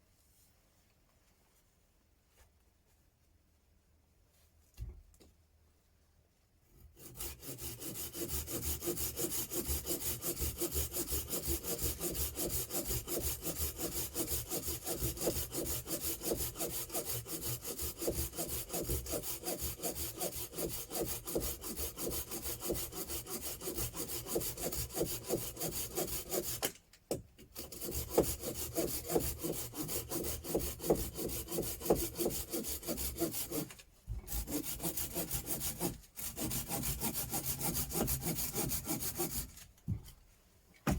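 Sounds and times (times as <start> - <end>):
hand saw cutting wood: 6.8 - 26.8, 27.4 - 39.7.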